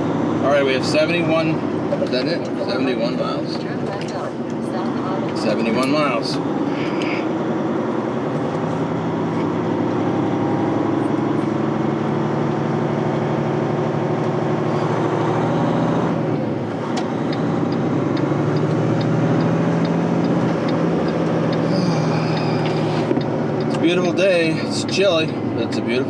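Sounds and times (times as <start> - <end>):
truck diesel engine running: 0.0 - 26.0
light even ticking: 17.1 - 24.0.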